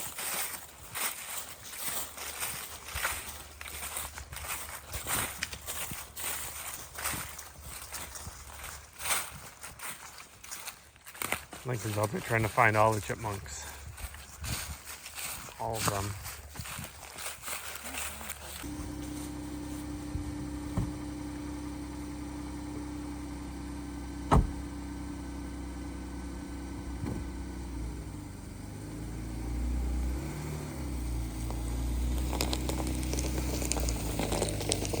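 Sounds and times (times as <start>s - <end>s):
vehicle engine idling: 0.0s - 9.2s, 11.6s - 16.5s, 18.0s - 35.0s.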